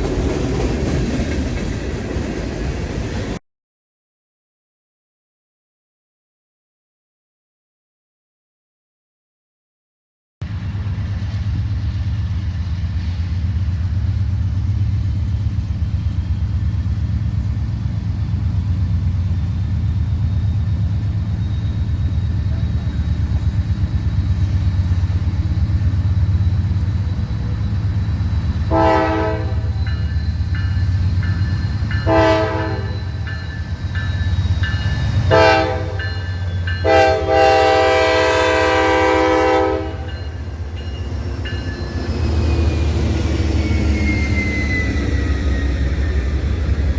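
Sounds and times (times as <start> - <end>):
diesel locomotive engine rumble: 0.0 - 3.4, 10.4 - 46.9
locomotive air horn blasts: 28.7 - 29.8, 32.0 - 33.2, 35.2 - 36.1, 36.8 - 40.2.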